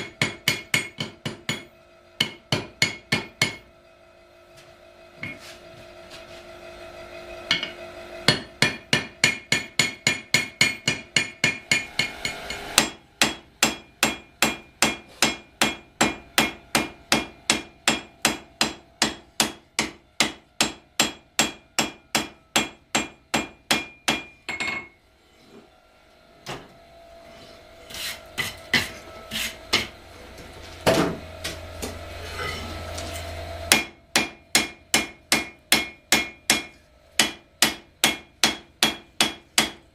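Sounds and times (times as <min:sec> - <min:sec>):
hammer striking steel on anvil: 0:00.0 - 0:03.7, 0:07.4 - 0:25.0, 0:28.4 - 0:30.0, 0:33.3 - 0:39.9.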